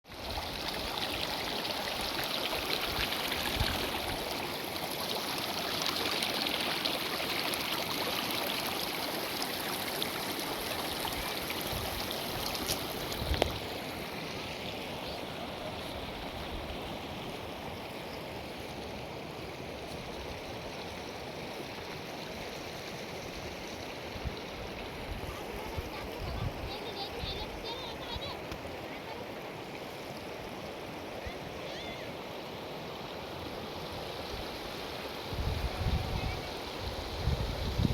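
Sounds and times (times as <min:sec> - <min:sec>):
stream water flowing: 0:00.0 - 0:37.9.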